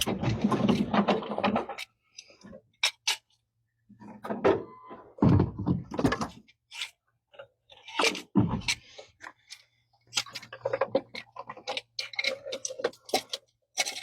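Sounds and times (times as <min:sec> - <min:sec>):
thuds and knocks: 0:04.3 - 0:06.4, 0:08.3 - 0:08.8.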